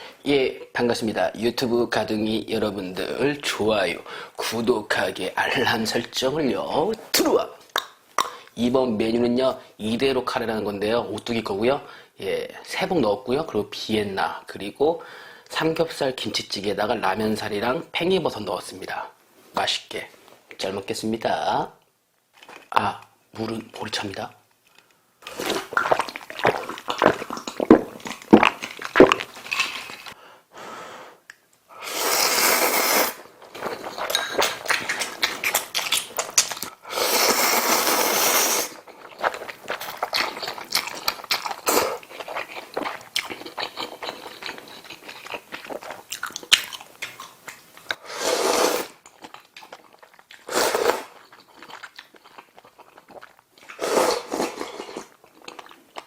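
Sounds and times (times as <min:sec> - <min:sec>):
wet chewing: 0:25.2 - 0:30.2, 0:33.4 - 0:36.8, 0:38.8 - 0:48.0, 0:49.0 - 0:56.0
loud slurping of noodles: 0:31.8 - 0:33.3, 0:36.8 - 0:38.8, 0:48.0 - 0:49.0, 0:50.4 - 0:51.2, 0:53.8 - 0:55.1.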